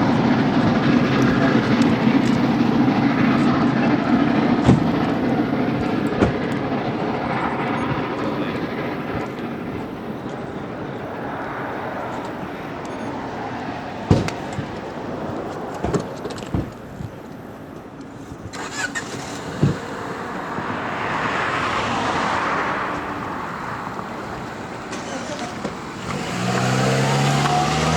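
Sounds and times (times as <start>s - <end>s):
passing vehicle rumble: 0.0s - 16.9s, 18.4s - 27.9s
sharp knocks: 4.6s - 5.2s, 14.1s - 14.7s.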